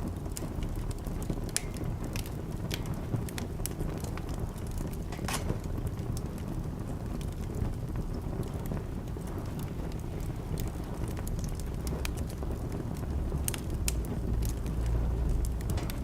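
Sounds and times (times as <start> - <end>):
fire low rumble: 0.0 - 16.0
fire pops and snaps: 0.0 - 16.0.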